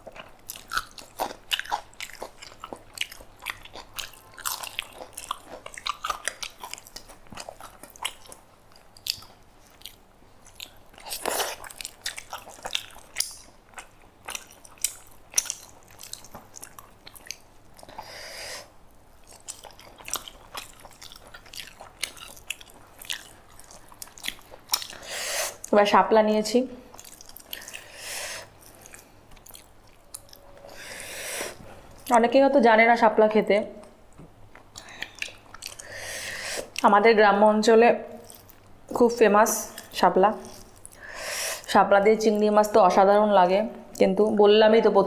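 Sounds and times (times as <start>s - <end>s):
biting and crunching food: 0.0s - 18.0s, 19.2s - 25.0s.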